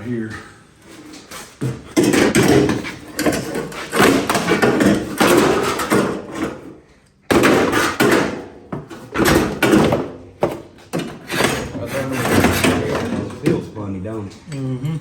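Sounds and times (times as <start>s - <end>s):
metal parts knocking and clattering: 2.0s - 6.7s.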